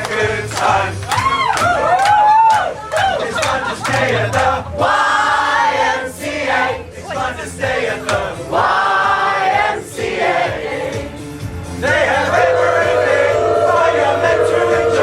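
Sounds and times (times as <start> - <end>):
choir singing chords: 4.7 - 15.0.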